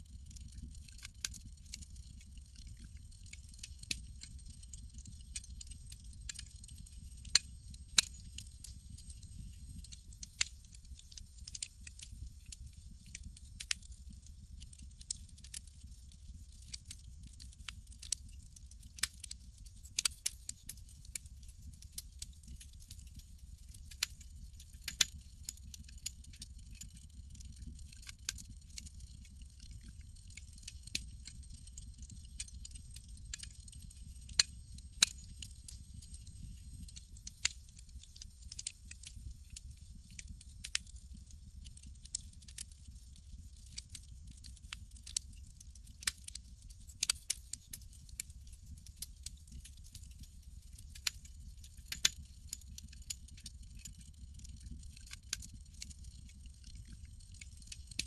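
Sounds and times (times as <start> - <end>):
campfire pops and snaps: 3.7 - 13.9, 14.7 - 15.8, 16.6 - 21.2, 24.8 - 30.0, 30.8 - 39.1, 40.1 - 41.0, 41.7 - 42.8, 43.6 - 45.2
low fire rumble: 20.0 - 45.6, 52.0 - 58.0.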